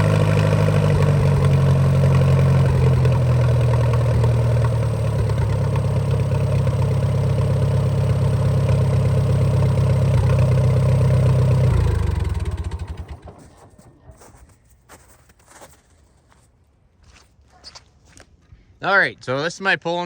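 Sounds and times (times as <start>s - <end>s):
tractor engine idling: 0.0s - 14.5s.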